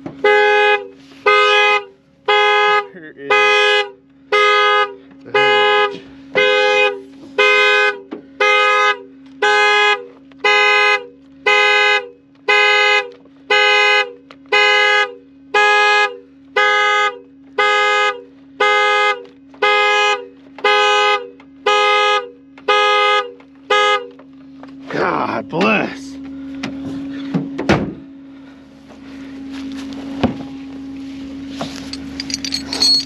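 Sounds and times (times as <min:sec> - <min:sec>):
car alarm horn blasts: 0:00.1 - 0:24.4.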